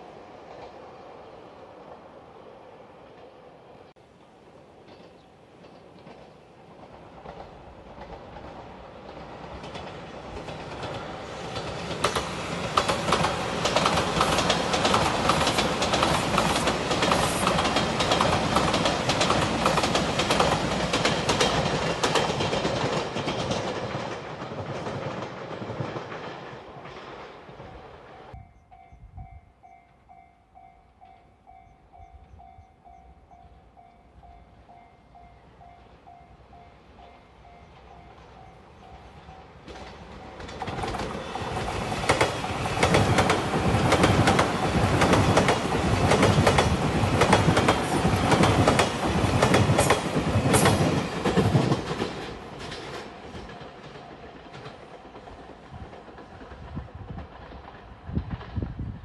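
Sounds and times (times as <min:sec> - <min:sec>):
wheels clattering on rails: 0:04.8 - 0:27.9, 0:37.6 - 0:58.6
level crossing warning bell: 0:28.4 - 0:39.6.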